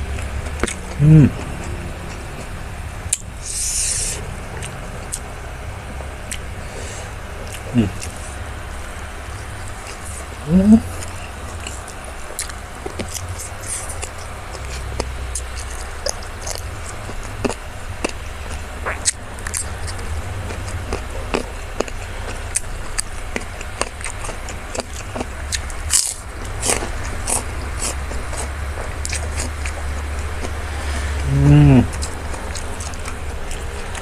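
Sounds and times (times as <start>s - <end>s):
person chewing with crisp crunches: 0.0s - 34.0s
steady low hum: 0.0s - 34.0s.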